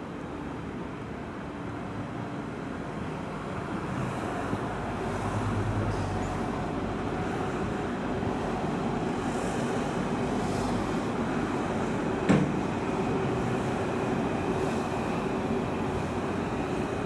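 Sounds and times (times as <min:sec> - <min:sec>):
city traffic hum: 0:00.0 - 0:17.0
electric train rumbling: 0:00.0 - 0:17.0.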